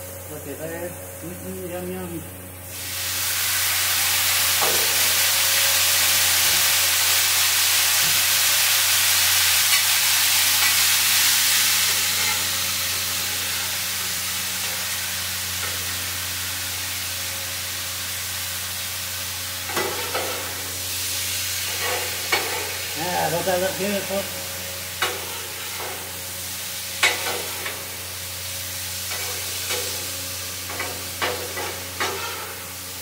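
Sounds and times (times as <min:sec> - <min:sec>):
food sizzling on a griddle: 0:01.4 - 0:33.0
metal spatula scraping griddle: 0:12.0 - 0:12.5, 0:31.2 - 0:32.6.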